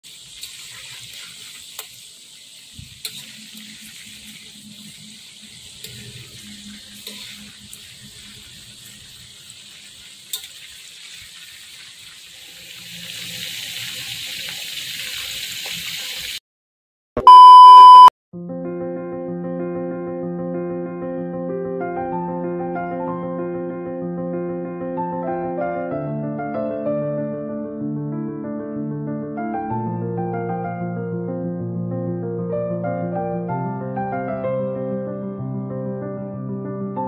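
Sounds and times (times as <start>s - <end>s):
food deep-frying in hot oil: 0.0s - 16.4s
loud electronic beep: 17.2s - 18.1s.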